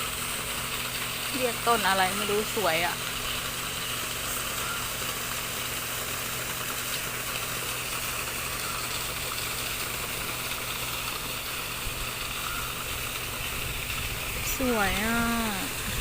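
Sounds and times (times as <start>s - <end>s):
flowing water hiss: 0.0s - 16.0s
low machine hum: 0.0s - 16.0s.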